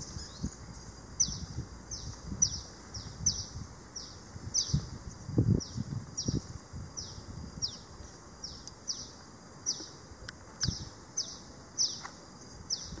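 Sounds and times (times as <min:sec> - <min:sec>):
small bird calling: 0:00.0 - 0:06.4, 0:10.6 - 0:13.0.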